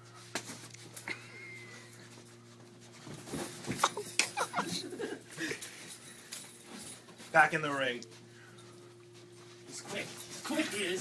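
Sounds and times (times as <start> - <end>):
bumps and rustling: 2.1 - 5.0.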